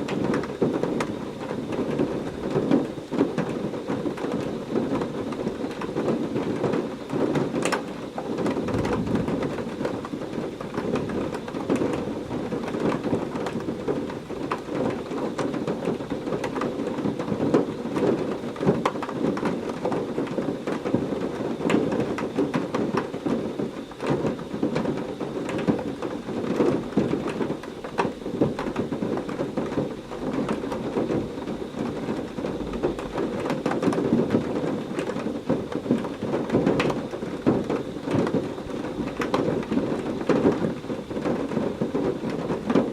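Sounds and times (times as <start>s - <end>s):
close raindrop hits: 0.0s - 23.4s
heavy rain falling: 0.0s - 42.9s
low thunder rolls: 8.5s - 9.9s.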